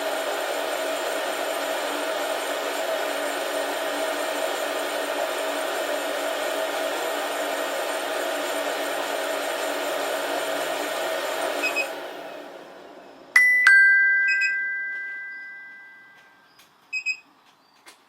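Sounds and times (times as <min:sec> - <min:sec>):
coffee roaster whirring: 0:00.0 - 0:13.3
short beeps: 0:13.4 - 0:16.4
two-note falling electronic chime: 0:13.4 - 0:16.4.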